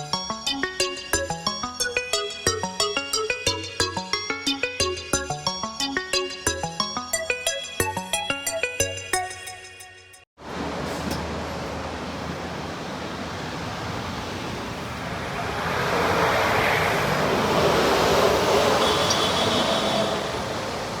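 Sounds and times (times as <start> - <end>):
traffic noise: 10.4 - 21.0
bus engine hum: 10.5 - 21.0.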